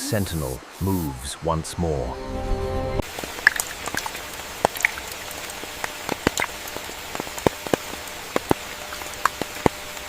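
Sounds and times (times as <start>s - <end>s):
rain falling: 0.0s - 10.0s
raindrops striking close by: 3.0s - 10.0s.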